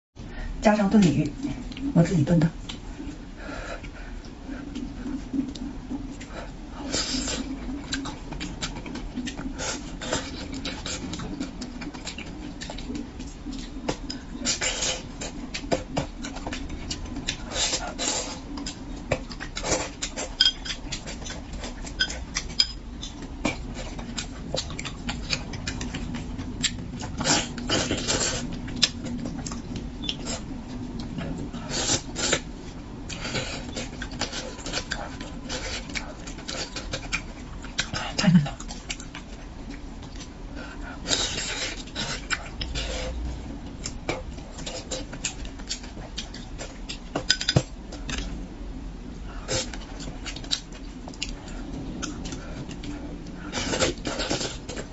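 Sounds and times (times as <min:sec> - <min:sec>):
faint steady hum: 0:00.2 - 0:54.9
wet chewing and lip smacks: 0:07.3 - 0:40.4.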